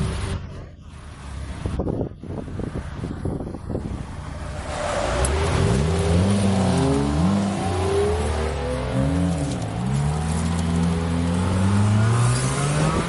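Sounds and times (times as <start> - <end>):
car engine revving: 3.9 - 13.0.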